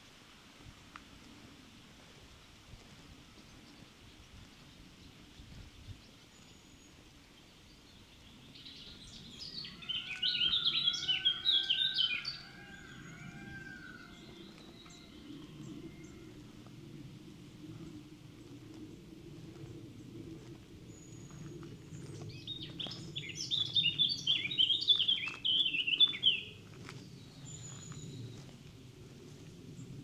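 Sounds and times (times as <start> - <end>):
faint outdoor background noise: 0.0 - 30.0
songbird chirping: 6.4 - 16.7, 20.4 - 28.6.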